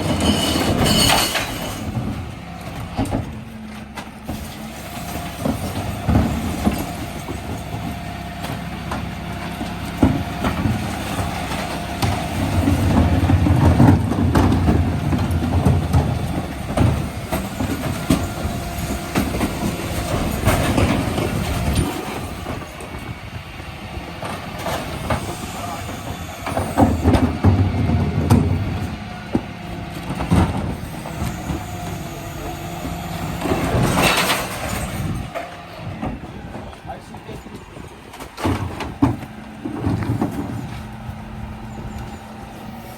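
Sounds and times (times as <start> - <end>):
bins knocking and rattling: 0.0 - 23.0, 24.2 - 31.7, 32.5 - 41.4
refuse truck engine: 0.0 - 42.9
bin-lift hydraulics: 10.5 - 36.5, 37.7 - 42.9.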